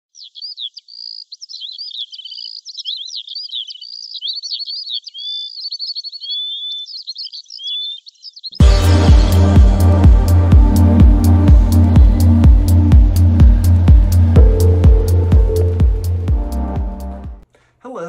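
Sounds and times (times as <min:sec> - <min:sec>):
songbirds chirping and trilling: 0:00.1 - 0:08.6
electronic music with heavy bass: 0:08.6 - 0:17.4.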